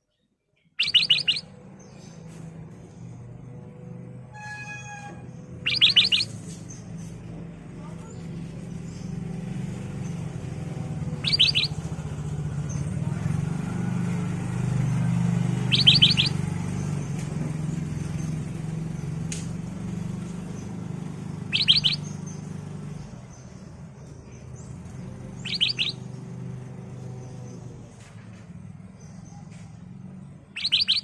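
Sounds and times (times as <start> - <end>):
bird calling high notes: 0.8 - 1.6, 4.3 - 6.6, 11.0 - 12.4, 15.4 - 16.5, 21.4 - 22.2, 25.3 - 26.1, 30.6 - 31.0.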